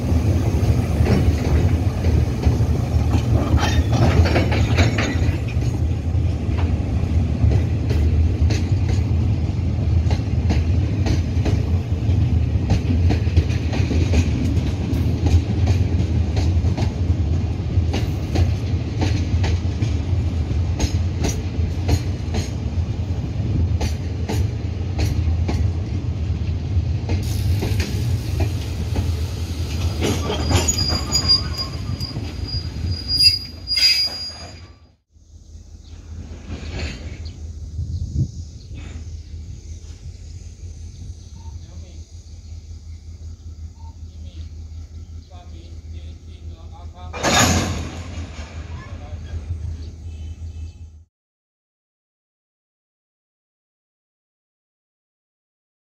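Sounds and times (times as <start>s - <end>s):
freight train rumbling past: 0.0s - 34.3s, 35.0s - 51.1s
wheels clicking over rail joints: 0.9s - 6.8s, 27.0s - 32.9s, 47.0s - 48.9s
high wheel squeal: 29.9s - 35.0s.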